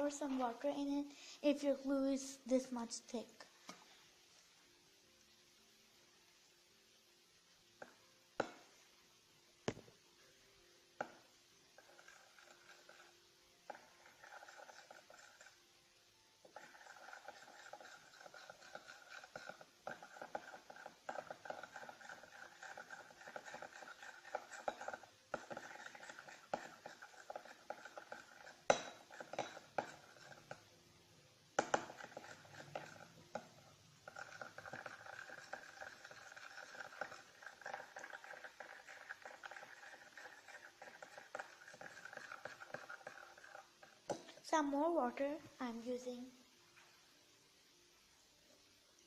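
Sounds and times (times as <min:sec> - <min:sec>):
tool stirring and scraping glue: 0:11.8 - 0:15.6, 0:16.4 - 0:30.8, 0:31.6 - 0:44.5.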